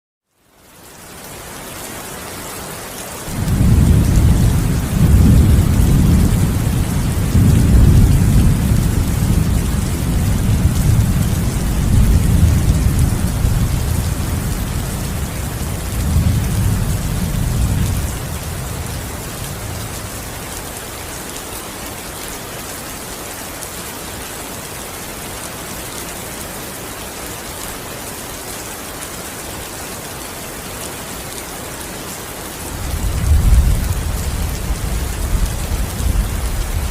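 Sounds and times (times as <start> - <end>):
rain falling: 0.3 - 36.9
rolling thunder: 3.3 - 20.2.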